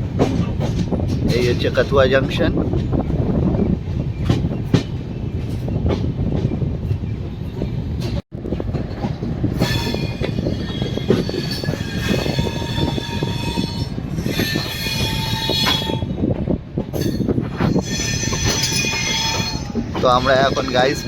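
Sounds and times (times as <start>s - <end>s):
train wheels on rails: 0.0s - 21.0s
wheel squeal: 9.6s - 16.1s, 17.0s - 21.0s.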